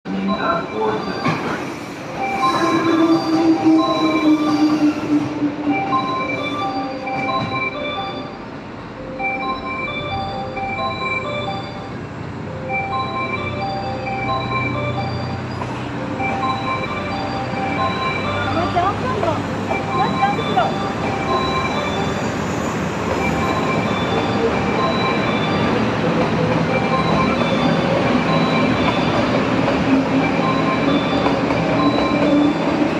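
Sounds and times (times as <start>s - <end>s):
wheels squealing on rail: 0.1s - 8.4s, 15.0s - 32.9s
train rumble: 0.1s - 32.9s
train wheels squealing: 0.4s - 8.2s, 15.0s - 16.0s, 30.2s - 32.9s.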